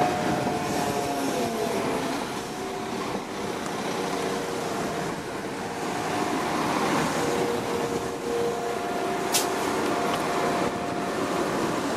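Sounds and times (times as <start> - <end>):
train rumbling: 0.0 - 11.9.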